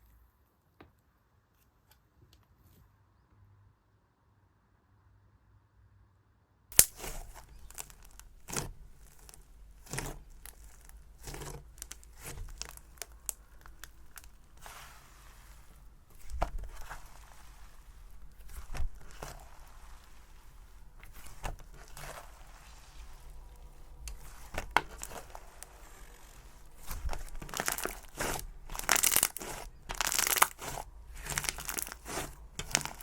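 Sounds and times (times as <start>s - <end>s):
slime crackling and tearing: 6.7s - 33.0s
slime popping: 6.7s - 33.0s.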